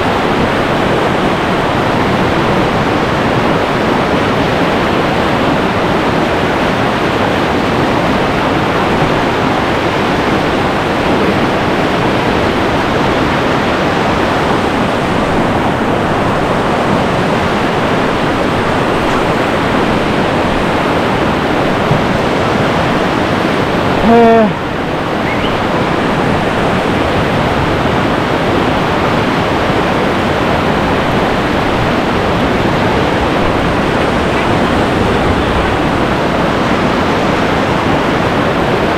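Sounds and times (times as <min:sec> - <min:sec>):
river rapid rushing: 0:00.0 - 0:38.9
person shouting: 0:24.0 - 0:24.6.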